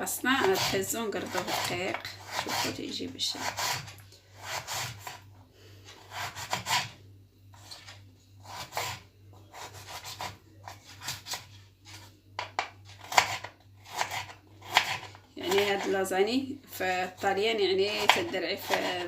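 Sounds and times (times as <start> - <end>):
knife cutting carrot on wooden board: 6.1 - 6.9, 8.4 - 11.4, 13.0 - 15.9.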